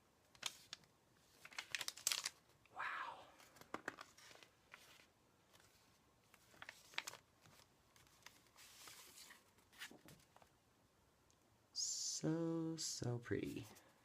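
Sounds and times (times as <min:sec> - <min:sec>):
paper pages rustling: 0:00.3 - 0:02.6, 0:03.4 - 0:10.5.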